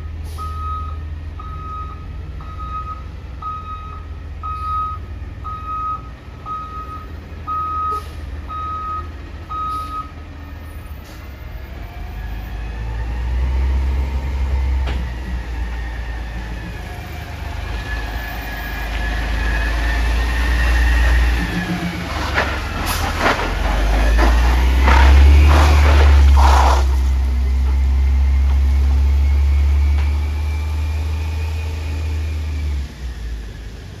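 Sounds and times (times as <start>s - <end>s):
diesel engine revving: 0.0s - 34.0s
reverse alarm beeping: 0.4s - 10.2s.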